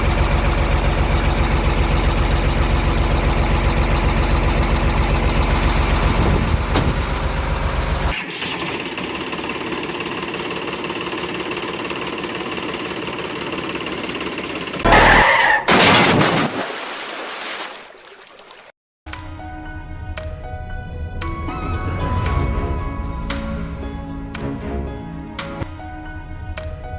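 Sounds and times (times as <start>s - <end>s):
vehicle engine chugging: 0.0s - 8.2s, 8.8s - 14.8s.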